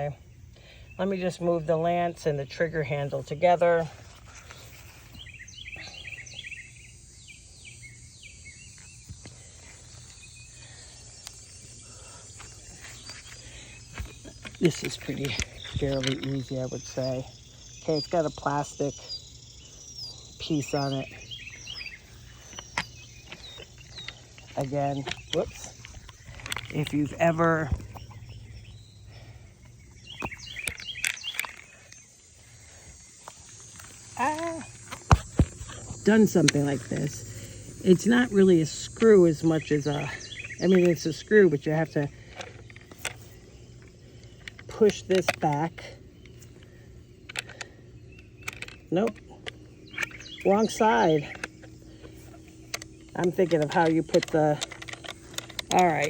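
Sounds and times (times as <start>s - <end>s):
bird singing falling notes: 0.0s - 56.0s
steady low hum: 0.0s - 56.0s
sharp clicks: 29.6s - 32.1s, 33.2s - 56.0s.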